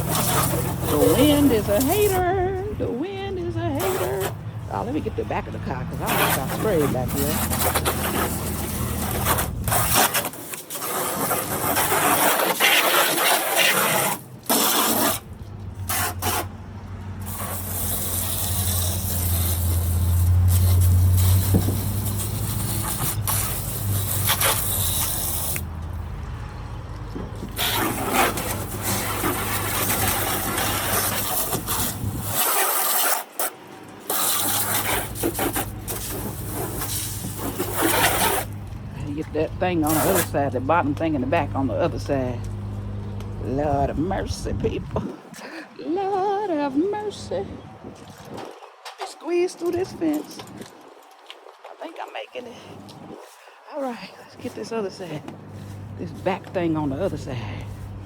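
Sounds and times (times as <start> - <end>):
hose spray hissing: 0.0 - 2.4, 3.7 - 5.0, 5.9 - 16.5, 17.2 - 25.7, 27.5 - 38.6, 39.8 - 40.4.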